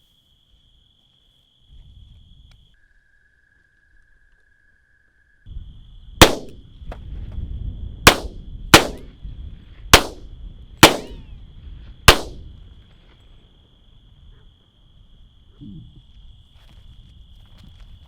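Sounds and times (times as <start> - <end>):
gunshots: 6.2 - 6.6, 8.1 - 9.1, 10.0 - 11.3, 12.1 - 12.5.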